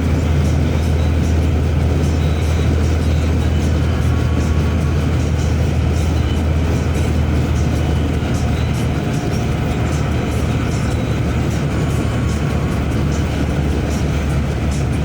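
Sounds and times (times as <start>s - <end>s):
vehicle road rumble: 0.0s - 15.0s.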